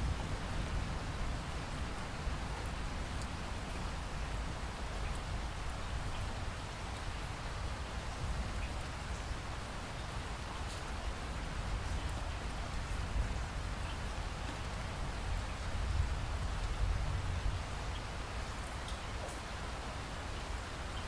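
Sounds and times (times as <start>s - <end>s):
steady rainfall: 0.0s - 21.0s.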